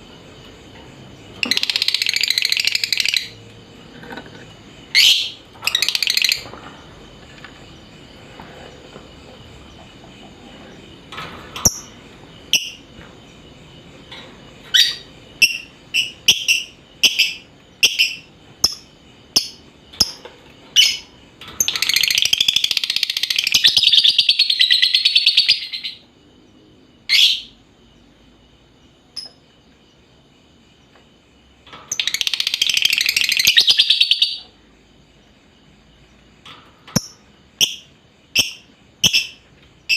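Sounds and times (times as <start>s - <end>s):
bird chirping: 0.4s - 3.8s, 4.4s - 11.0s, 11.6s - 26.1s, 31.9s - 34.6s, 36.9s - 39.9s
bird chattering trills: 1.3s - 3.4s, 4.8s - 6.5s.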